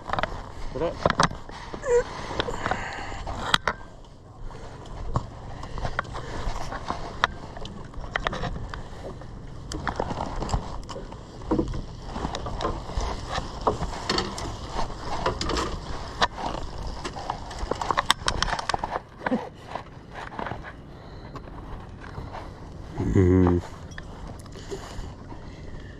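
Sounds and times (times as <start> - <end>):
wind and sea rumble: 0.0 - 25.9
knocks and clatter on boat deck: 5.0 - 20.7.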